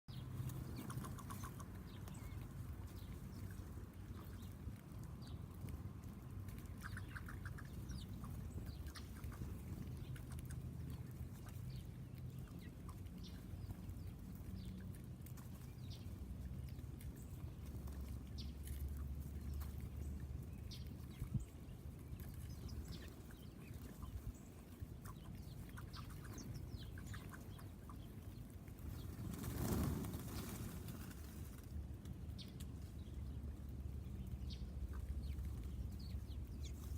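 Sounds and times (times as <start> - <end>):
songbirds chirping: 0.1 - 36.9
steady low rumble: 0.1 - 36.9.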